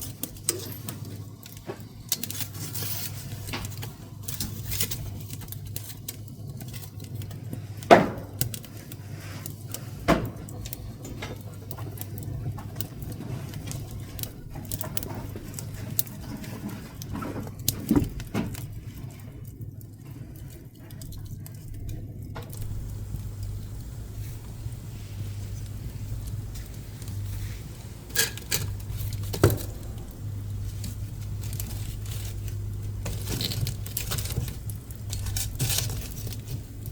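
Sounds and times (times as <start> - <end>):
wood crackling in a stove: 0.0 - 36.9
steady low hum: 22.4 - 36.9.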